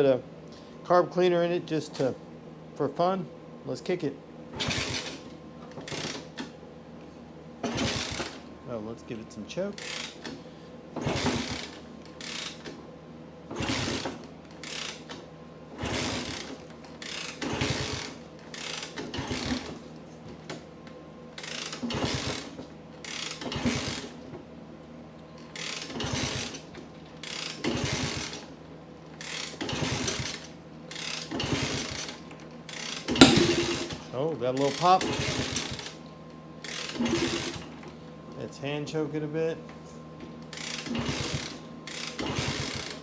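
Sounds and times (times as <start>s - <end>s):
motorcycle engine being kick-started: 4.5s - 6.5s, 7.6s - 8.4s, 11.0s - 12.8s, 13.5s - 15.2s, 15.8s - 20.6s, 21.4s - 24.4s, 25.4s - 28.5s, 29.2s - 36.0s, 36.6s - 38.0s, 40.4s - 43.0s.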